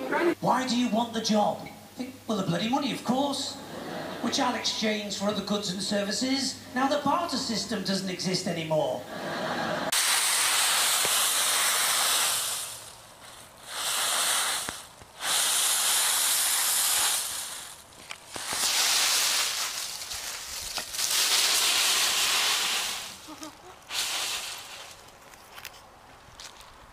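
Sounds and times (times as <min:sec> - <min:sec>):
dry leaves rustling: 0:10.0 - 0:26.9.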